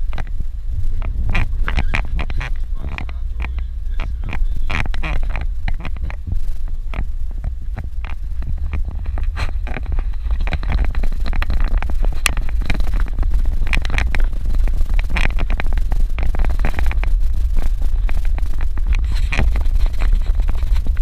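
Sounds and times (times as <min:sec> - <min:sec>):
car driving on rough dirt road: 0:00.0 - 0:21.0.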